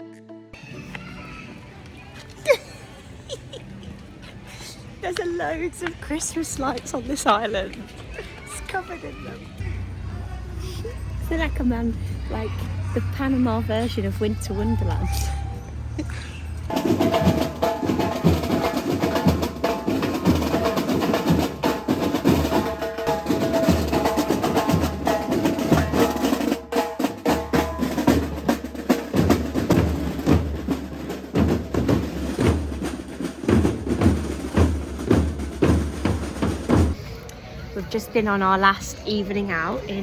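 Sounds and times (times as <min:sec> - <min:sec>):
drum band playing: 0:16.7 - 0:37.0.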